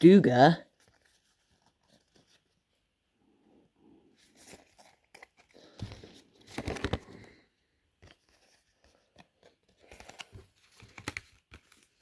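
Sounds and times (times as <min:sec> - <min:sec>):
trading cards rustling and clicking: 0:04.2 - 0:12.0.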